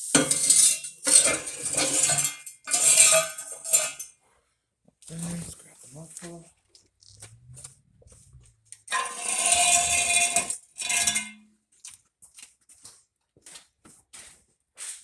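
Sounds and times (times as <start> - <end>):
metal muffler scraping: 5.1 - 11.4
metal clanking: 7.0 - 11.4.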